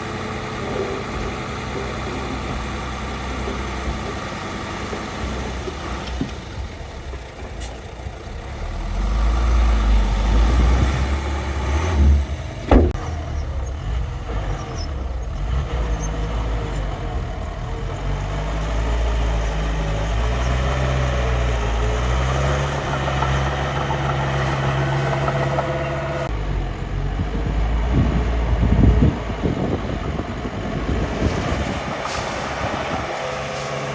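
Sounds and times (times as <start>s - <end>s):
sharp knock: 12.7s - 13.0s.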